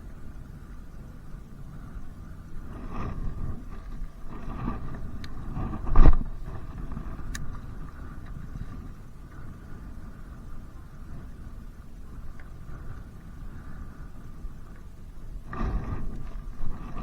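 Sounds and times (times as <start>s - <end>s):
wind rumbling on microphone: 0.0s - 17.0s
small clicks: 6.8s - 8.8s.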